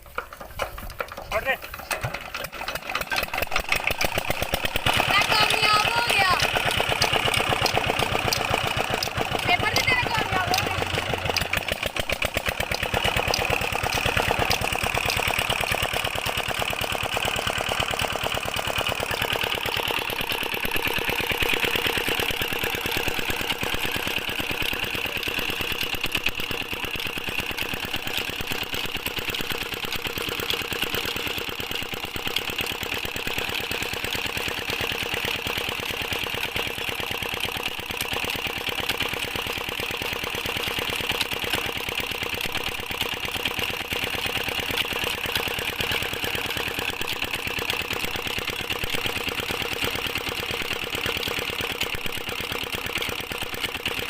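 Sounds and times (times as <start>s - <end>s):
diesel water pump engine running: 0.0s - 54.0s.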